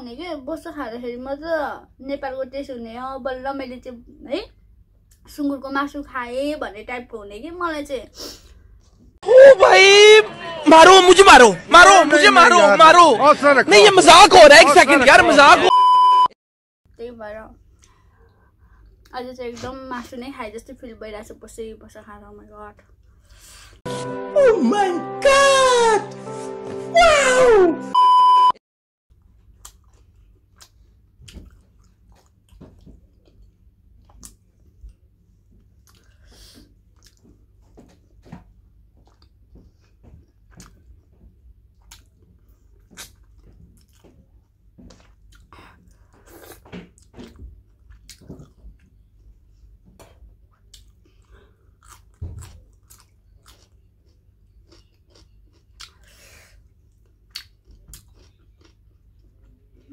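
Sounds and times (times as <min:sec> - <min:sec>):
person chewing with wet smacks: 0:29.2 - 0:59.9.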